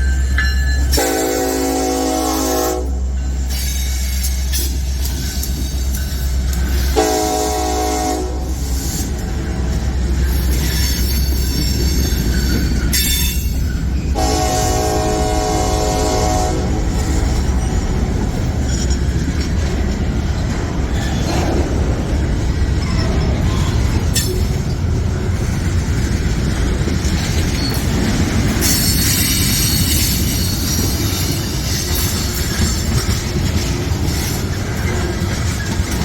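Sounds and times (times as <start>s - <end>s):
freight train rumbling: 0.0s - 36.0s
locomotive horn blasts: 0.9s - 3.0s, 6.9s - 8.7s, 14.1s - 17.4s
wheel squeal: 10.2s - 14.1s.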